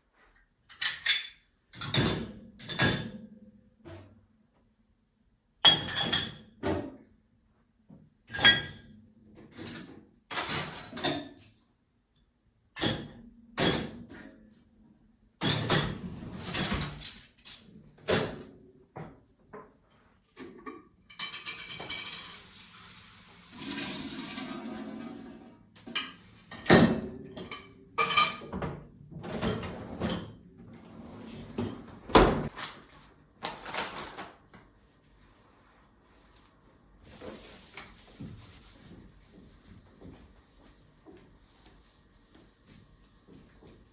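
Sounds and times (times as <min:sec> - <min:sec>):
dishes and glassware clinking: 0:00.7 - 0:03.3, 0:05.6 - 0:06.6, 0:08.3 - 0:08.9, 0:09.6 - 0:11.5, 0:20.5 - 0:22.4, 0:25.9 - 0:28.8.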